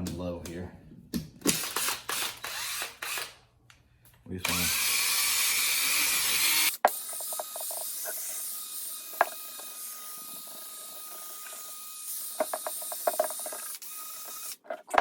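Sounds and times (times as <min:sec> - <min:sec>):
buffing tool whine: 0:04.5 - 0:14.6.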